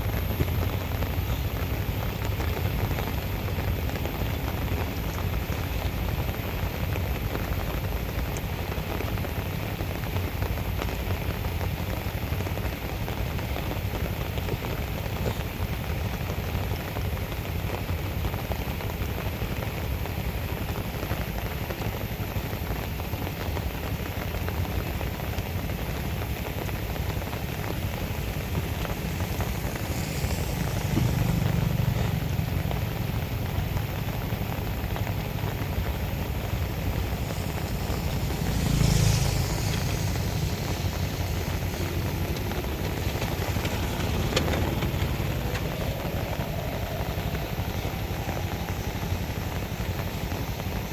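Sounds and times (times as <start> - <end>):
rain: 0.0 - 50.9
running floodwater: 0.0 - 50.9
low rumble: 26.4 - 50.9.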